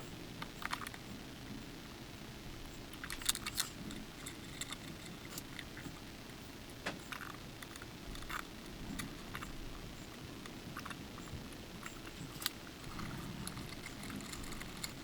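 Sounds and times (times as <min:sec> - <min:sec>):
faint room noise: 0:00.0 - 0:15.0.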